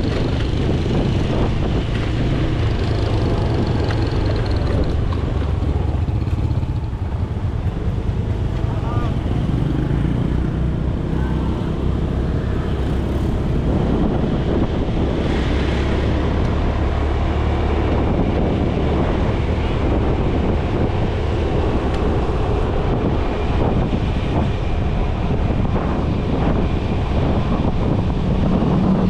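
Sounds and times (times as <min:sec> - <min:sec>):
motorcycle engine running: 0:00.0 - 0:15.1
wind rushing over microphone: 0:00.0 - 0:29.0.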